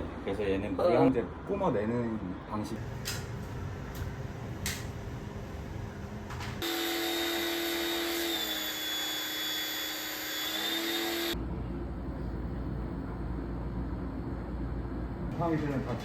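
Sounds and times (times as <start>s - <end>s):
pressure washer motor whining: 6.6s - 11.4s.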